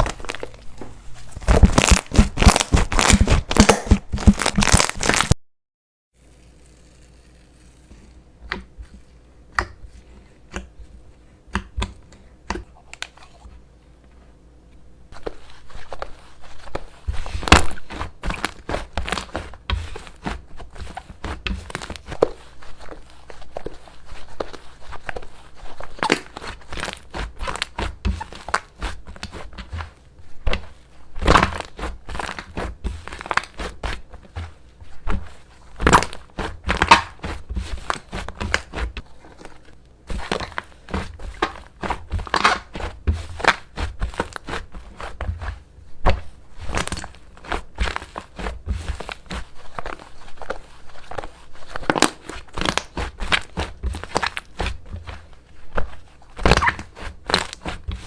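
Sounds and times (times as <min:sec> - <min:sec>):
slime popping and crackling: 0:00.0 - 0:05.4, 0:35.8 - 0:39.0, 0:46.0 - 0:55.2, 0:55.8 - 0:58.0.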